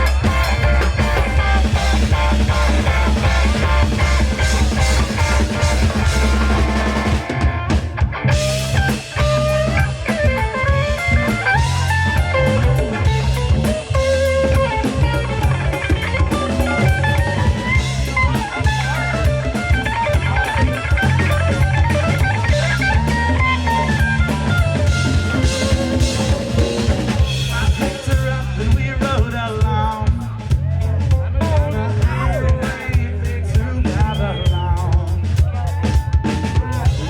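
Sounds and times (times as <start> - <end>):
guitar melody: 0.0 - 28.9
bass guitar: 0.0 - 37.0
drum kit: 0.0 - 37.0.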